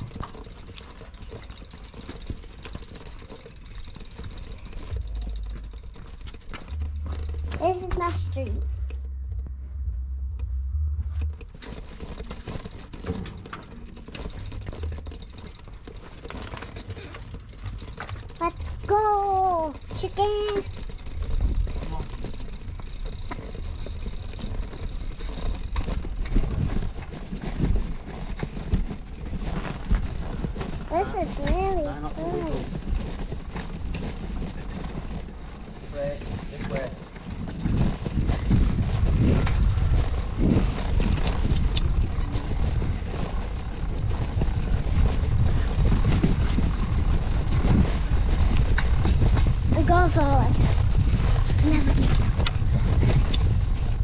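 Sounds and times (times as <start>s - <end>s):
bicycle clicks and rattles: 0.0s - 9.5s, 11.1s - 54.0s
bicycle rumble: 0.0s - 54.0s
wind buffeting microphone: 17.0s - 54.0s.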